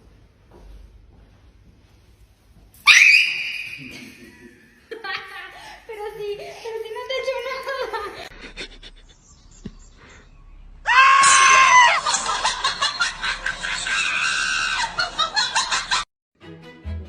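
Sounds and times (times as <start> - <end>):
loud high-pitched scream: 2.8 - 4.4, 10.8 - 12.1, 13.8 - 15.0.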